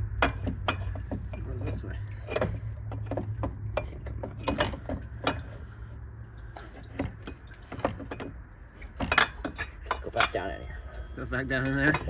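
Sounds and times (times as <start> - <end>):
metallic clicks and knocks: 0.1 - 5.7.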